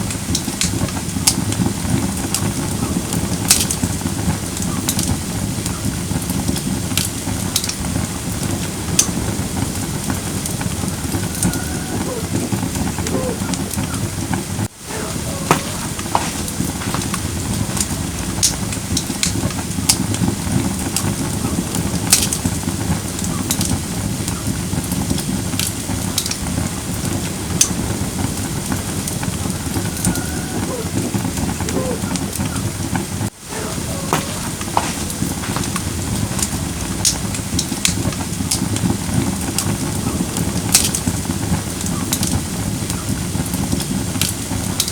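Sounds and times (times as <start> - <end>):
campfire crackling: 0.0 - 44.9
sharp pops of burning wood: 0.0 - 44.9.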